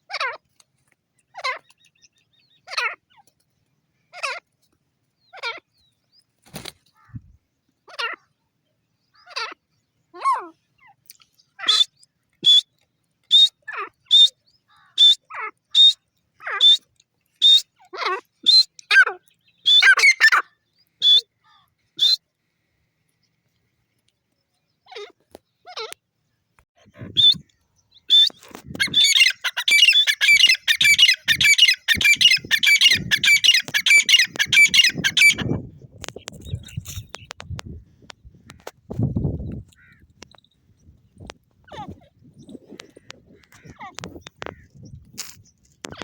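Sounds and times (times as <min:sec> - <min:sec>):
francolin harsh calls: 0:26.9 - 0:35.6.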